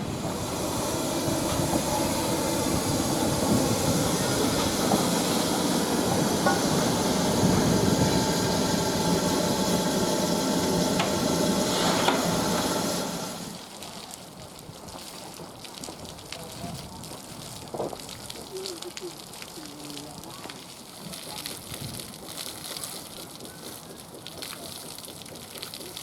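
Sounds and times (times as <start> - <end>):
steam train hiss: 0.0 - 13.7
rail noise: 0.0 - 13.8.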